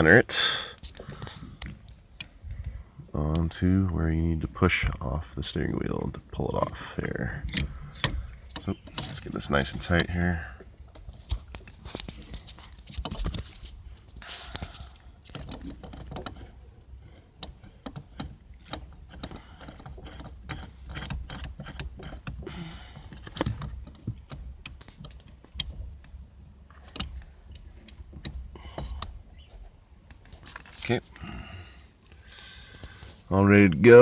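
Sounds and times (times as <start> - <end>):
small metallic clicks and knocks: 7.4 - 10.2, 10.9 - 31.0.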